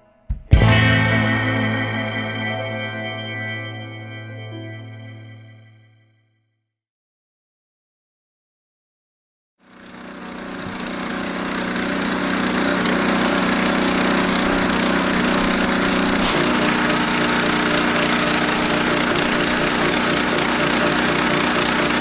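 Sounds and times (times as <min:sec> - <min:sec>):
pressure washer engine running: 0:09.6 - 0:22.0
pressure washer click: 0:10.6 - 0:22.0.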